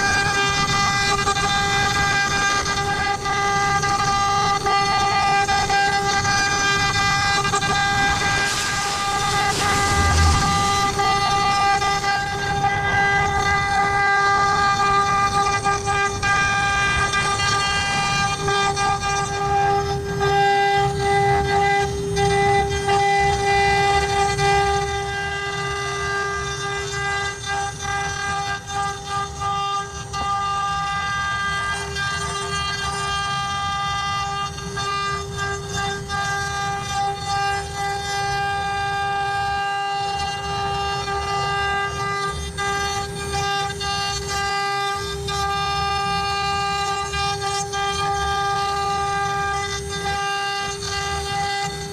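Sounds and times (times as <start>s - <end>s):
bit grinding wood: 0.0s - 19.9s
router spindle whine: 0.0s - 51.9s.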